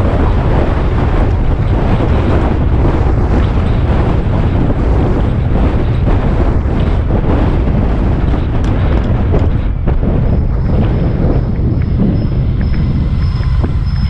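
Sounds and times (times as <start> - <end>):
motorcycle engine: 0.0 - 14.0
road noise: 0.0 - 14.0
wind buffeting microphone: 0.0 - 14.0.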